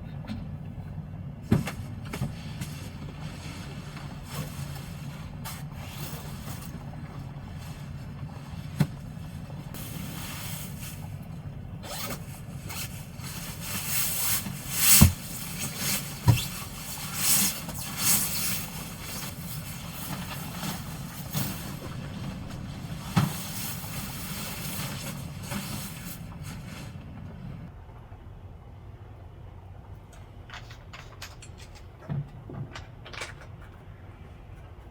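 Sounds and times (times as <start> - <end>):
low steady hum: 0.0 - 34.9
knocks and thumps: 19.1 - 24.2.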